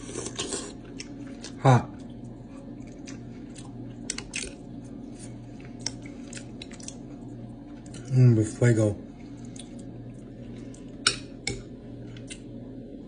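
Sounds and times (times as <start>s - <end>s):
chewing food: 0.0s - 8.1s, 9.1s - 12.5s.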